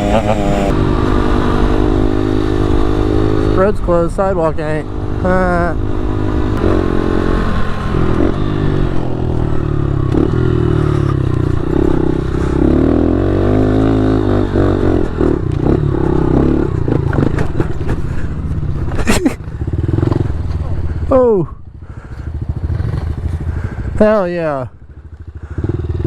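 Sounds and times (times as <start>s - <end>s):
motorbike engine revving: 0.0s - 1.4s.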